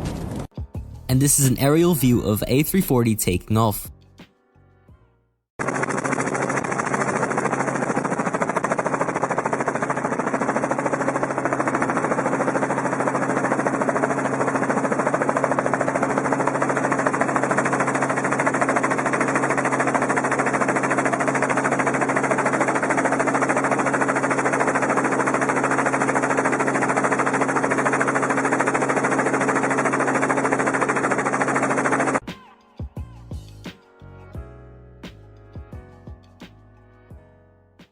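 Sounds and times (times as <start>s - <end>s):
aircraft engine drone: 5.6s - 32.2s.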